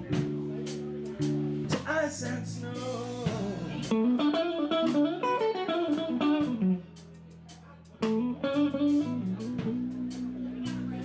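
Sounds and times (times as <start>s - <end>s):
live band playing: 0.0s - 11.0s
electric guitar lead runs: 3.5s - 6.8s.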